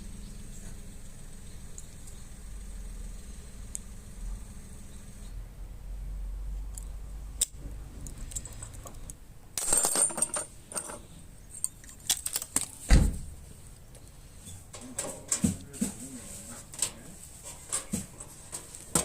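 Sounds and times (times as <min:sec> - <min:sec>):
metallic clicks and clinks: 0:06.7 - 0:12.8
metal parts clattering: 0:08.0 - 0:12.9, 0:14.6 - 0:15.9, 0:16.6 - 0:19.0.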